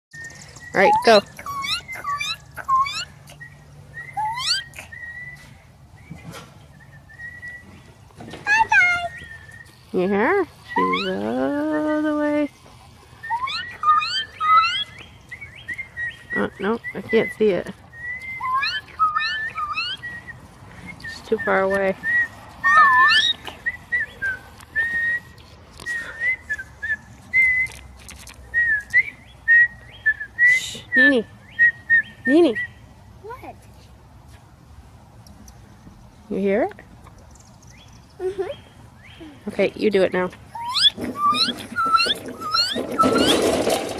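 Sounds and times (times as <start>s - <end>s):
person whistling rising slurred notes: 4.0s - 5.5s, 13.2s - 14.9s, 18.0s - 20.4s, 22.0s - 25.3s, 40.6s - 43.4s
thin steady whistle notes: 13.3s - 14.9s, 40.6s - 43.4s
person whistling short notes: 28.6s - 31.0s.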